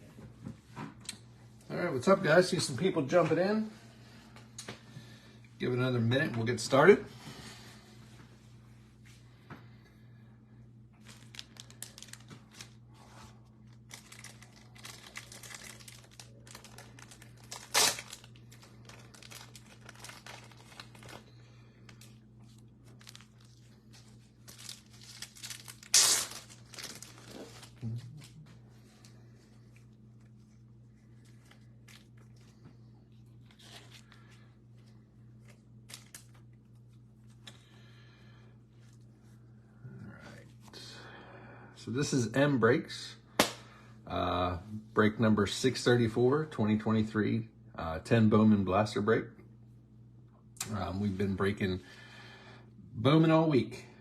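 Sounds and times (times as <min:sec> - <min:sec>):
steady low hum: 0:00.0 - 0:54.0
packaging crinkling and tearing: 0:11.0 - 0:37.6
sharp loud rips: 0:25.8 - 0:26.6.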